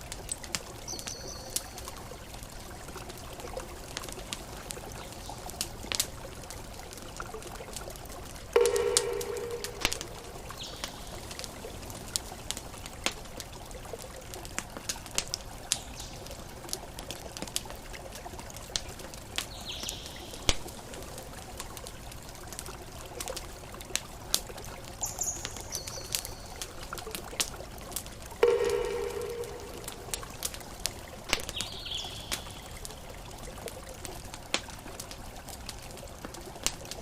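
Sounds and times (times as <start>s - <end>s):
campfire crackling and popping: 0.0s - 37.0s
high chirps: 8.6s - 11.0s, 28.4s - 30.4s.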